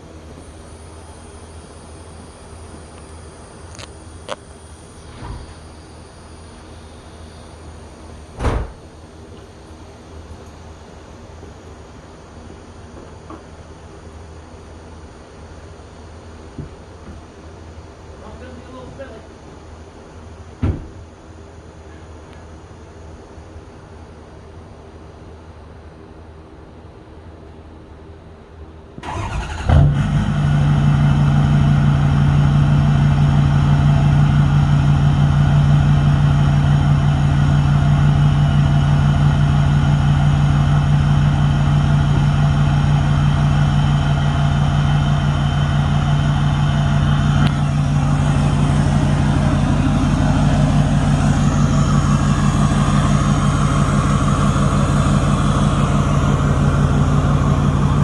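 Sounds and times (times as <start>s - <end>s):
diesel engine cranking and idling: 29.0s - 58.0s.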